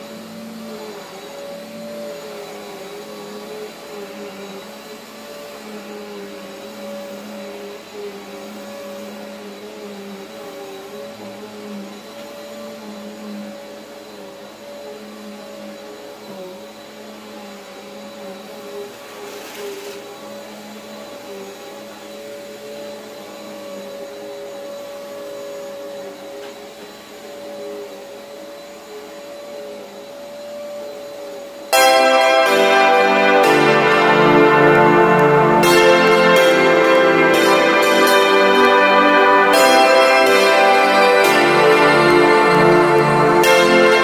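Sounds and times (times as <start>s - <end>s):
vacuum cleaner running on carpet: 0.0s - 31.7s.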